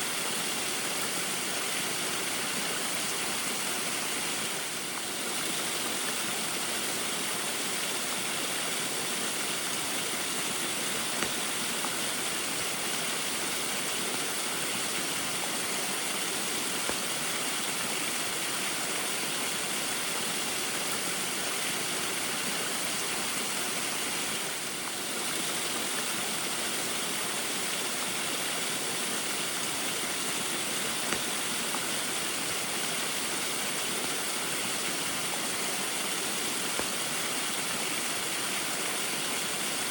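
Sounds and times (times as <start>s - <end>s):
small waterfall rushing: 0.0s - 39.9s.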